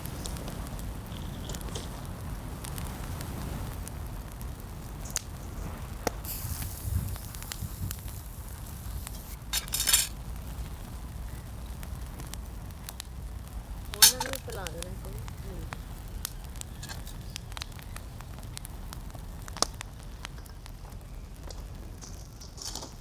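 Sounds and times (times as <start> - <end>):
wind buffeting microphone: 0.0 - 21.0
utensils clattering: 9.2 - 10.1, 14.0 - 14.7
cooking utensils clinking: 9.4 - 10.1, 14.0 - 14.7.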